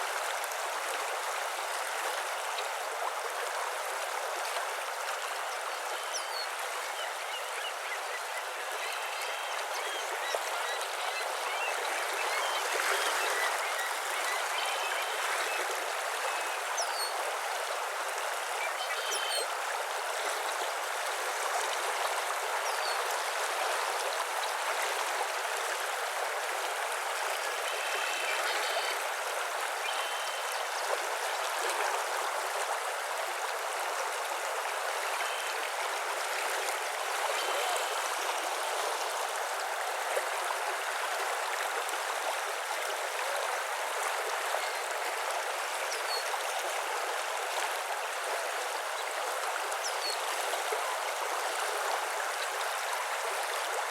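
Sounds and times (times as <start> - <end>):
running water rushing: 0.0 - 53.9
faint bird calls and chirps: 5.7 - 17.2, 18.6 - 19.5, 27.4 - 29.1, 29.8 - 30.8, 35.1 - 35.7.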